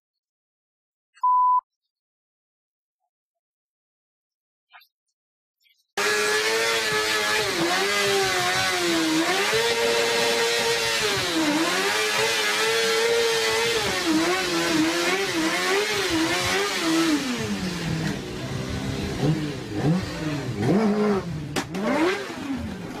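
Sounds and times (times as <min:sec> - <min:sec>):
motorcycle engine revving: 0:06.0 - 0:23.0.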